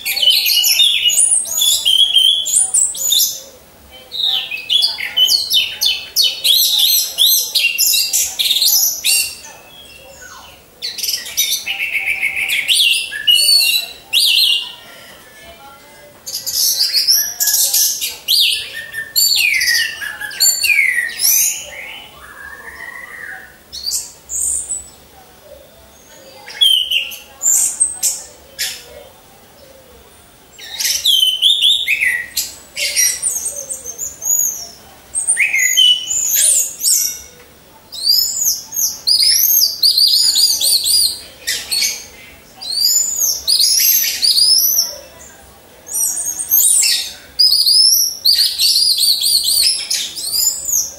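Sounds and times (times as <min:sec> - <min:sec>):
thrush singing whistled phrases: 0:00.0 - 0:03.5, 0:04.1 - 0:15.1, 0:16.3 - 0:24.9, 0:25.9 - 0:28.0, 0:30.6 - 0:37.3.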